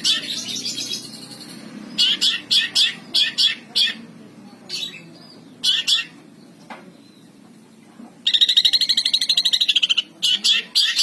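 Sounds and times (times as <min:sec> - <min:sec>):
shrike singing rapid trill: 0:08.2 - 0:11.0.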